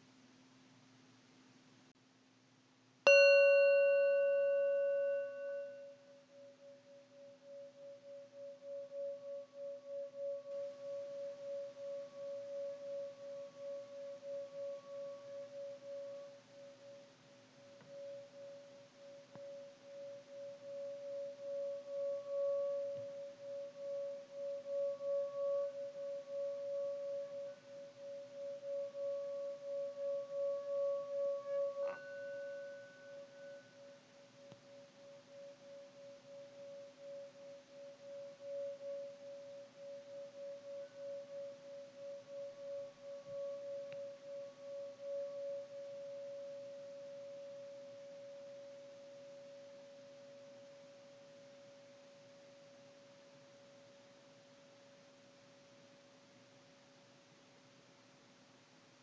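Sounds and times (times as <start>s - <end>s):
higher-pitched bowl struck: 3.1s - 16.9s, 17.7s - 50.8s
singing bowl pulsing tone: 3.1s - 57.6s.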